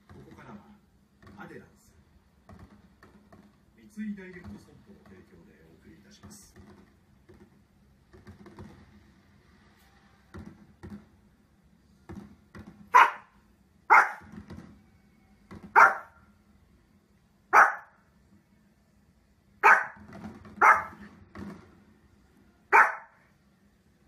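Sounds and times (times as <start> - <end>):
small dog barking: 12.9 - 14.3, 15.7 - 16.2, 17.5 - 18.0, 19.6 - 20.0, 20.6 - 21.0, 22.7 - 23.2.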